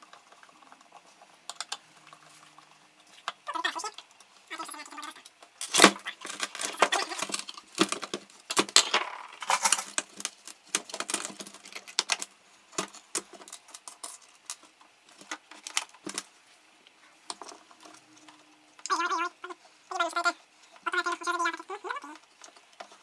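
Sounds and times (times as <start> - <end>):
metal parts and tools clinking: 8.8 - 10.0.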